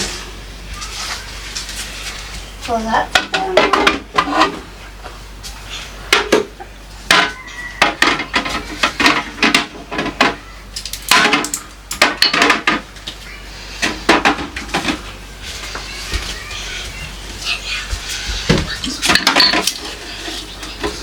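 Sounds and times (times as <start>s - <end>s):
jars knocking and clinking: 19.0s - 19.8s.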